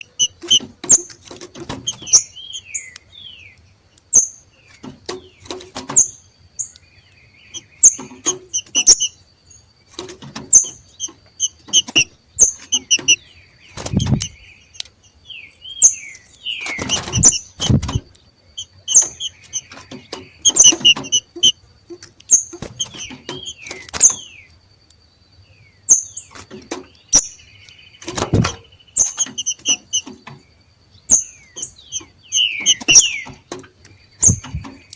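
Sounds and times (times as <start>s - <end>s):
dull thumps: 13.8s - 14.4s, 16.7s - 18.1s, 18.9s - 21.5s, 28.0s - 30.4s, 31.6s - 34.9s
downward-sliding bird whistles: 16.5s - 18.0s, 31.6s - 33.4s
sharp bird call notes: 31.8s - 33.3s.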